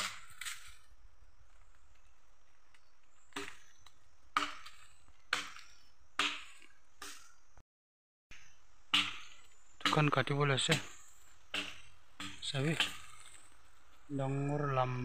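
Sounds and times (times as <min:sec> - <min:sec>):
wood being chopped: 0:00.0 - 0:00.8, 0:02.8 - 0:07.3, 0:08.9 - 0:13.6.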